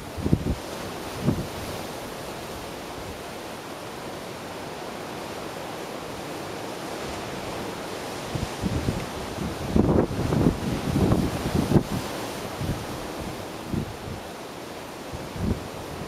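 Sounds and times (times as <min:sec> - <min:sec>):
ocean surf washing: 0:00.0 - 0:16.0.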